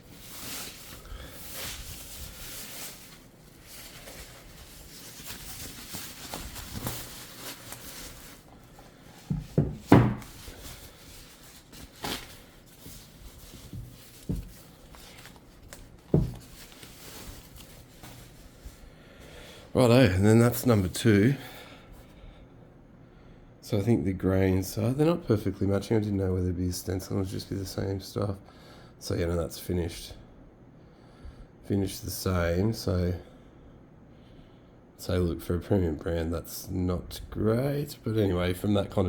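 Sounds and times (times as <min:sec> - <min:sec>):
packaging rustling: 0:00.0 - 0:18.8
knocks and thuds: 0:09.3 - 0:10.4.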